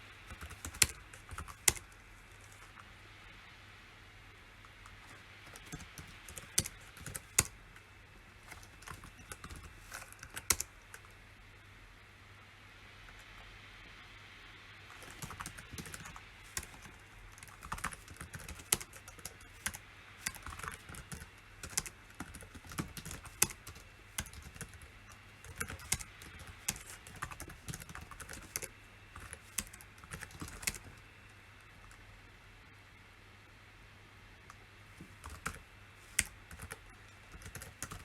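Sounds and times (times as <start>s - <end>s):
keyboard typing: 0.3s - 2.9s, 4.6s - 11.2s, 14.9s - 31.0s, 34.5s - 38.0s.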